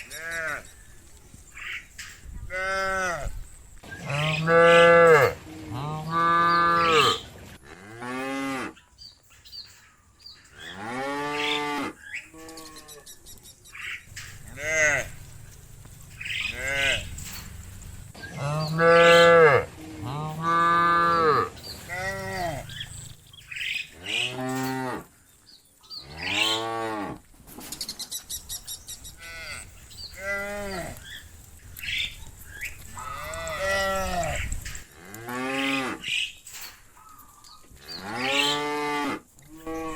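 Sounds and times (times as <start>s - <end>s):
cows mooing: 4.0s - 8.8s, 10.6s - 13.1s, 14.1s - 25.1s, 29.2s - 31.2s, 32.9s - 36.2s, 37.9s - 39.9s.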